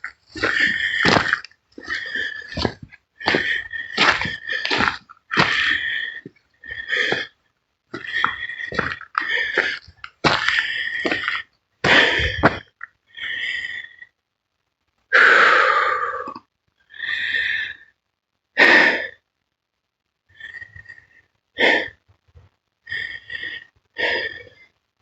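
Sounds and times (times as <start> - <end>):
heavy breathing: 0.0 - 7.4, 8.0 - 14.0.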